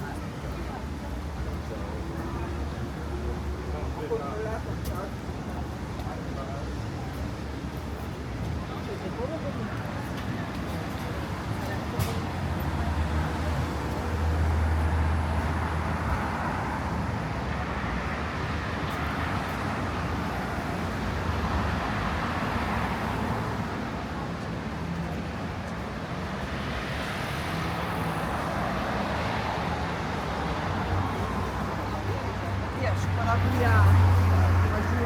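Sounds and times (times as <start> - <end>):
passing cars: 7.6 - 35.0.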